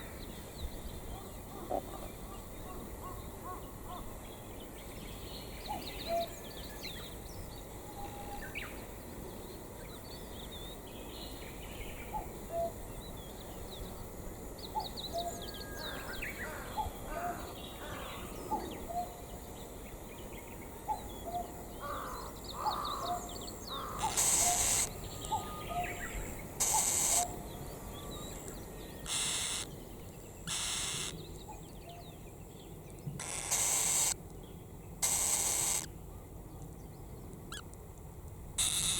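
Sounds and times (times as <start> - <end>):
birds calling: 20.9 - 32.3, 33.1 - 34.2, 35.0 - 35.9
crow cawing: 21.8 - 23.1, 23.8 - 25.5.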